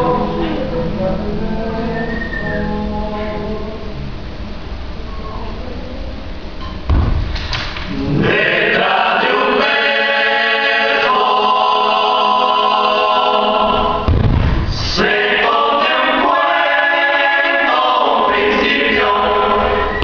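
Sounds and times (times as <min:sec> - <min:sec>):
choir singing held chords: 0:00.0 - 0:04.5, 0:07.9 - 0:20.0
low thump: 0:06.9 - 0:07.4, 0:14.0 - 0:14.8.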